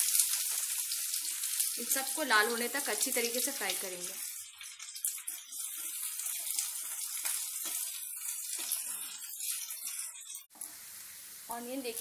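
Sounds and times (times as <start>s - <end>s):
onions sizzling in oil: 0.0s - 12.0s
spatula scraping and tapping pan: 4.4s - 10.6s.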